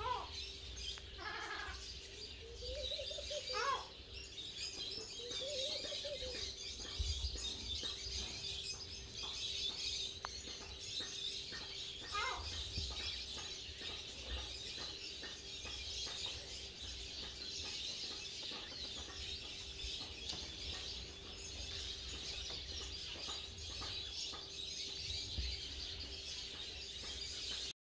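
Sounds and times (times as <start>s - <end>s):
birds chirping: 0.0s - 27.8s.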